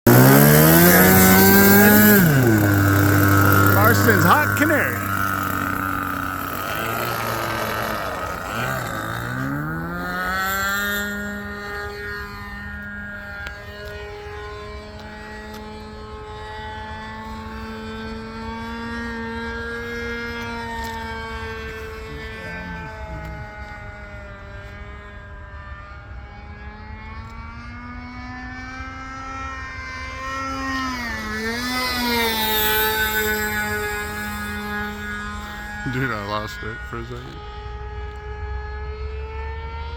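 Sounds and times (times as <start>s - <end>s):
model plane engine revving: 0.0s - 39.9s.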